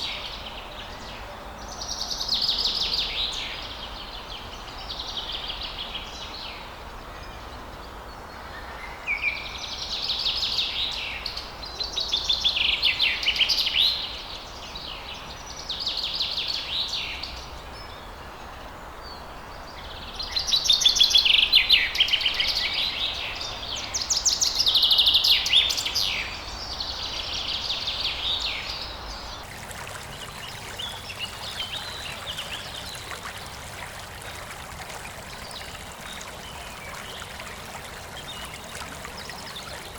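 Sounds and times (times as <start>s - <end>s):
songbird singing: 14.9s - 39.9s.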